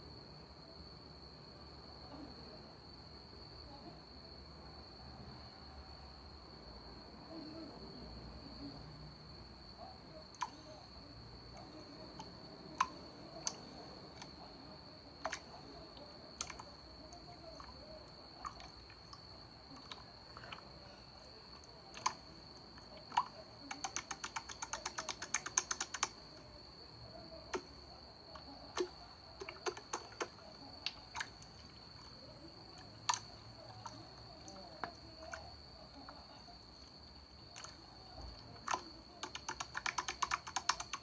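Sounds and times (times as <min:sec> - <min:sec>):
sharp clicks: 0:23.0 - 0:26.2, 0:28.7 - 0:31.4, 0:38.6 - 0:41.0.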